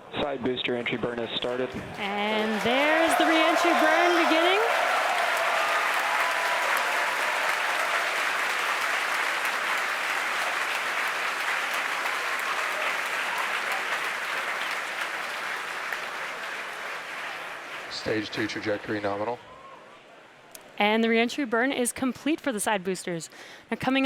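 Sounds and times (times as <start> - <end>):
crowd applauding: 1.9 - 19.2.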